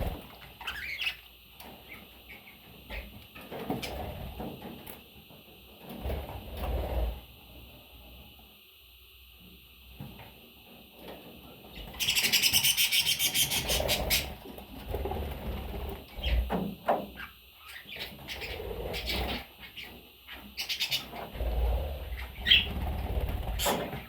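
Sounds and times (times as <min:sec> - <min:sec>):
budgerigar chirping: 0:12.0 - 0:14.3, 0:22.1 - 0:22.7.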